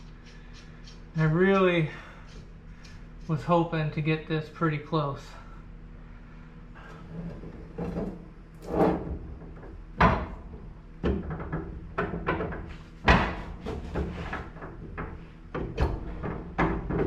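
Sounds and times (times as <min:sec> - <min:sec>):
suspension parts knocking: 0:07.4 - 0:17.0.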